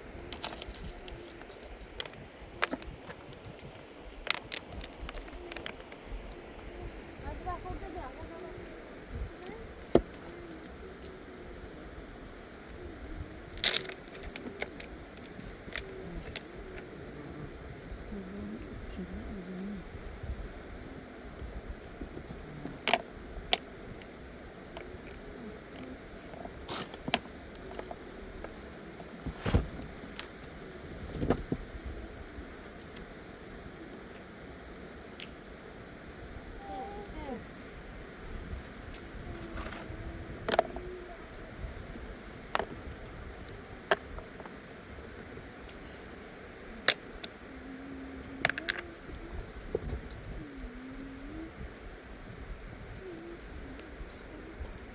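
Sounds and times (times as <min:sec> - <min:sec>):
dove cooing: 0:39.2 - 0:41.6, 0:46.6 - 0:51.8, 0:52.9 - 0:54.9.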